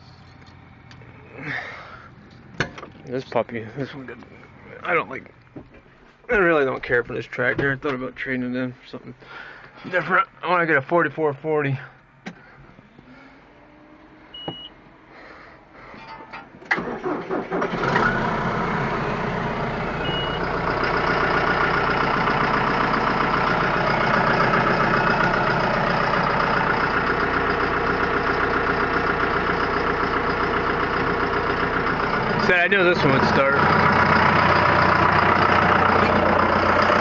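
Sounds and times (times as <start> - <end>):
tractor diesel engine idling: 0.0 - 5.4, 6.3 - 37.0
short beep: 14.3 - 14.8, 20.0 - 20.4
engine cranking: 16.0 - 37.0.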